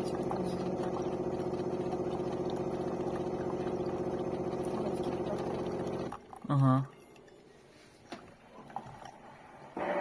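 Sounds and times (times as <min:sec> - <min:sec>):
coffee maker humming: 0:00.0 - 0:06.9.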